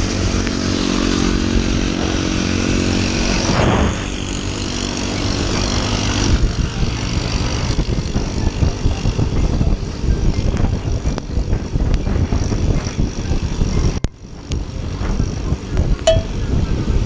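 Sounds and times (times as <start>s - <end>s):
scooter engine humming: 0.0s - 12.4s.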